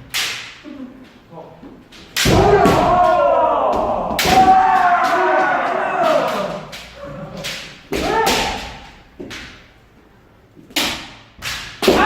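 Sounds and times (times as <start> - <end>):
bamboo swords hitting armour: 2.2 - 6.5, 7.5 - 9.6, 10.7 - 12.0
person shouting: 2.4 - 6.7, 8.0 - 8.8.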